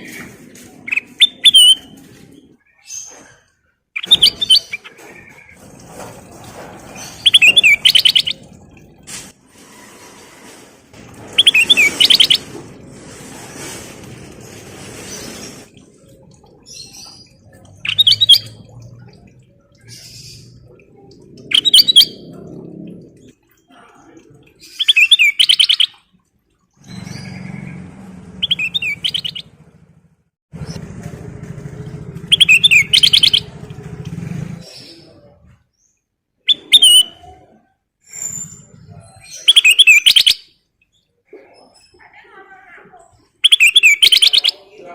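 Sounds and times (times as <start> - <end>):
low rumbling noise: 26.8 - 35.6.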